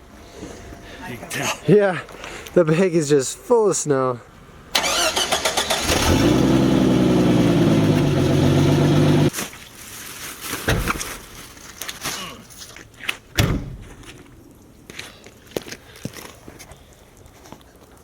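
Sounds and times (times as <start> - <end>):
car engine idling: 4.8 - 9.3.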